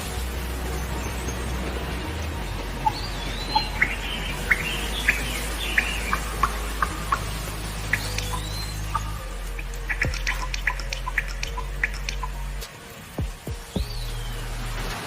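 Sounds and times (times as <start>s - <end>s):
small birds chirping: 0.4s - 15.0s
whistled bird note: 7.8s - 12.4s.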